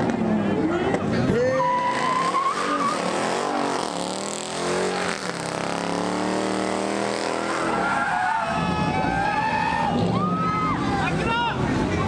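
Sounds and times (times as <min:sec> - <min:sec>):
car engine at high revs: 0:00.0 - 0:08.8
tire squeal: 0:01.3 - 0:05.6, 0:07.0 - 0:11.2.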